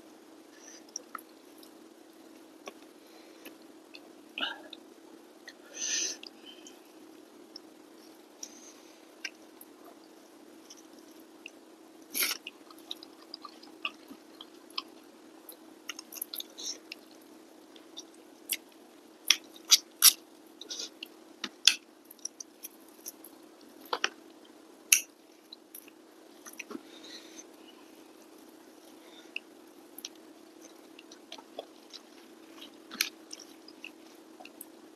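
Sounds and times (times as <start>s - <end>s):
faint steady hum: 0.0s - 34.9s
chewing with wet smacks: 12.2s - 26.8s, 29.3s - 34.8s.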